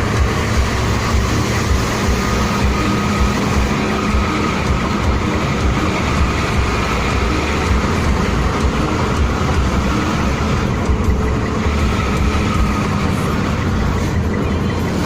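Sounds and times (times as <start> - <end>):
highway traffic noise: 0.0 - 15.0.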